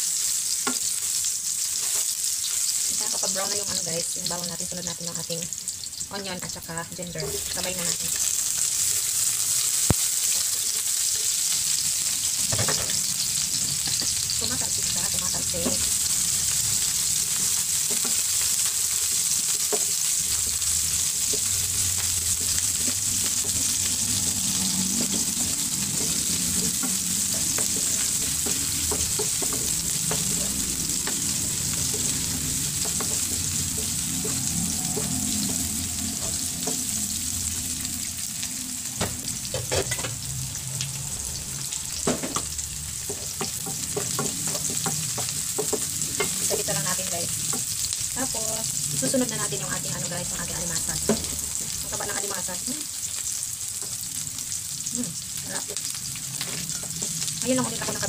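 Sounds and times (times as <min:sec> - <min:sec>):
food sizzling in hot oil: 0:00.0 - 0:58.0
spatula scraping a pan: 0:17.4 - 0:35.6.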